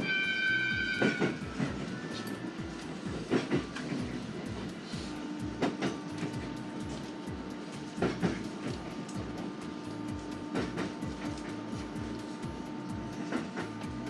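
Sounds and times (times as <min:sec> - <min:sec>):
wheel clacks over rail joints: 0:00.0 - 0:05.0
faint motor hum: 0:00.0 - 0:14.0
train rumble: 0:00.0 - 0:14.0.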